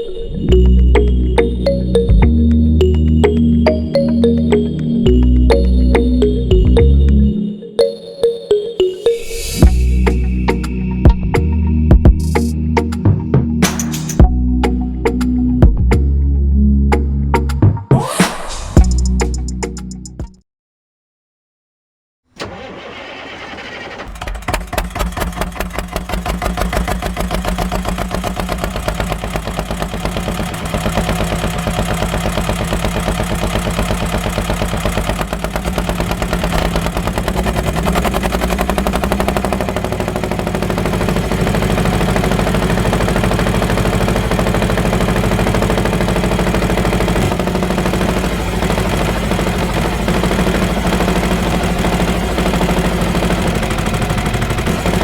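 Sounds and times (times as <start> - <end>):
small engine running: 22.4 - 55.0.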